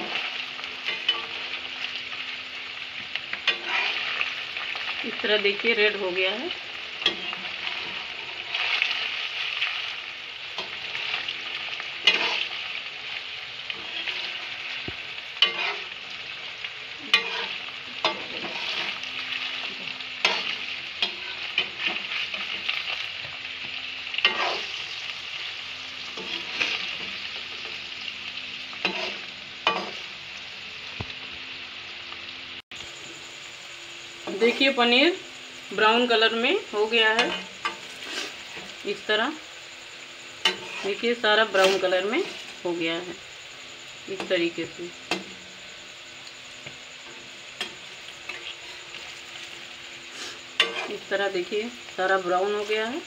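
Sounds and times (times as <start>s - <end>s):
cheese cubes sizzling in oil: 0.0s - 53.0s
spatula scraping and knocking pan: 3.4s - 4.2s, 12.0s - 12.5s, 13.7s - 16.0s, 17.0s - 24.8s, 26.1s - 27.2s.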